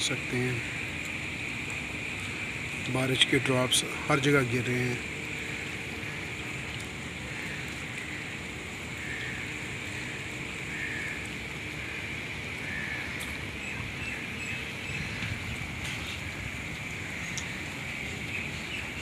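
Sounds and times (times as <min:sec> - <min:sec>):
heavy rain on paving and grass: 0:00.0 - 0:19.0.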